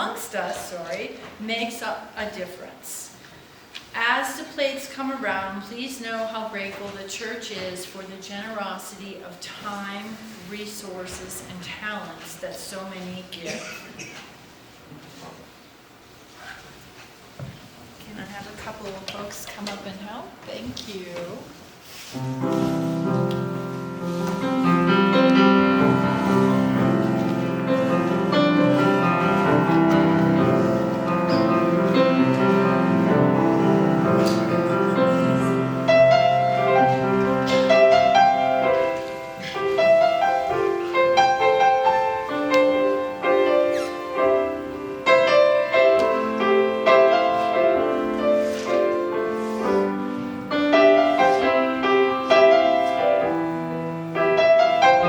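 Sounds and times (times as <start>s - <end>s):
piano playing: 22.1s - 55.0s.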